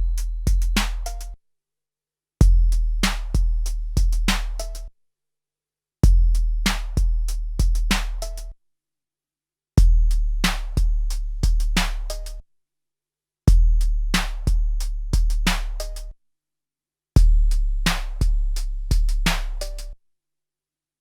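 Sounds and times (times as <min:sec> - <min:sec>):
deep bass drum: 0:00.0 - 0:01.1, 0:02.4 - 0:04.4, 0:06.0 - 0:08.0, 0:09.8 - 0:11.8, 0:13.5 - 0:15.8, 0:17.2 - 0:19.6.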